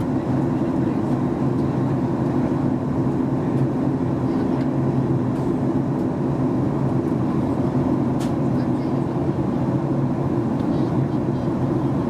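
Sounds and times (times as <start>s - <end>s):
jet engine drone: 0.0s - 12.0s.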